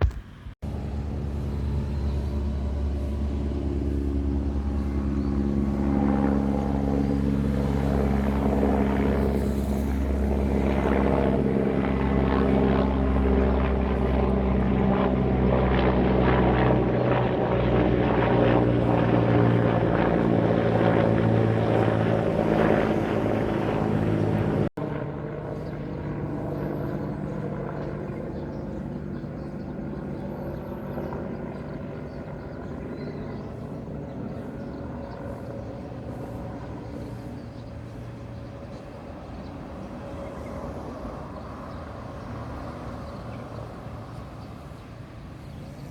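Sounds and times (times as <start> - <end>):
vehicle engine droning: 0.0 - 10.4.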